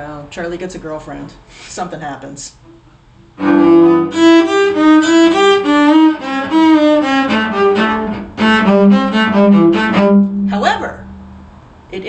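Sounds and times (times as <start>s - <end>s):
bowed string melody: 3.3s - 11.8s
held low drone note: 6.2s - 11.8s.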